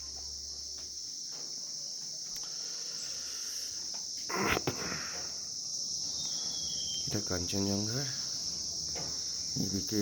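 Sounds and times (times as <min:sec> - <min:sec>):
crickets droning: 0:00.0 - 0:10.0.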